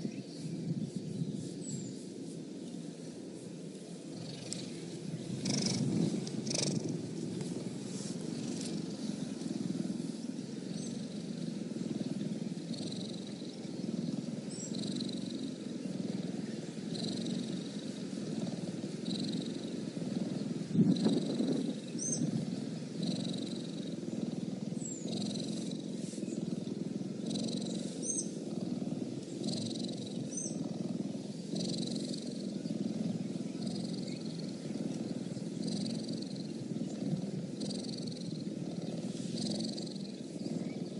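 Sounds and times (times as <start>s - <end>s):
cheetah purring: 0.0s - 40.9s.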